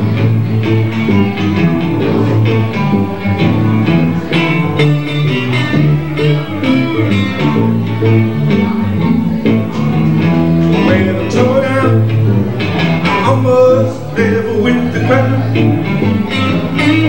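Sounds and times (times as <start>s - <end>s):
blues band playing live: 0.0s - 17.0s
lead guitar: 0.0s - 17.0s.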